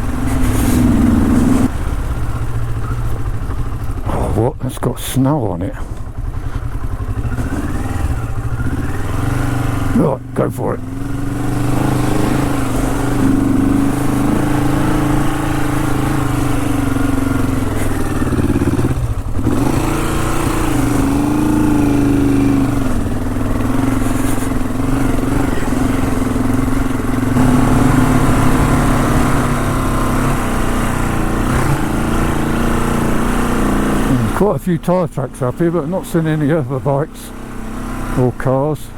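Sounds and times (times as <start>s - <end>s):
motorcycle engine under load: 0.0s - 38.9s.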